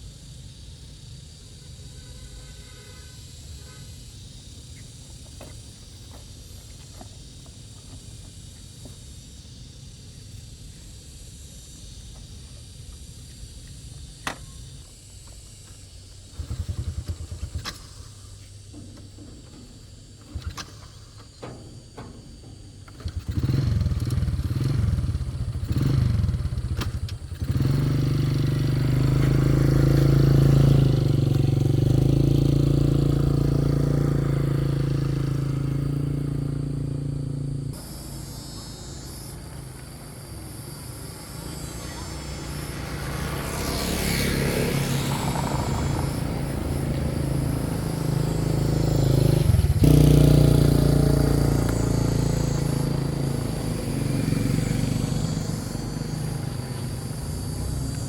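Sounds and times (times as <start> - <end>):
vehicle engine starting and running: 15.8 - 58.0.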